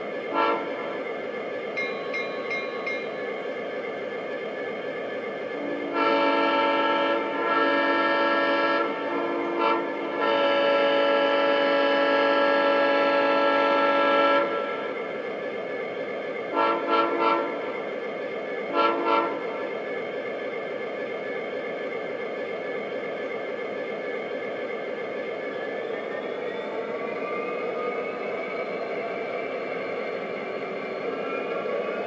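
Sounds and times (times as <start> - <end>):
locomotive running hiss: 0.0 - 32.0
diesel air horn blasts: 0.3 - 0.9, 5.6 - 14.8, 16.5 - 17.6, 18.7 - 19.4.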